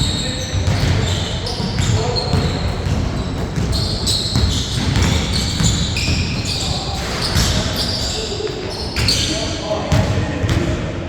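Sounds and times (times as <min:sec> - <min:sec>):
basketball bouncing: 0:00.0 - 0:07.9
sneakers squeaking on court: 0:00.0 - 0:10.7.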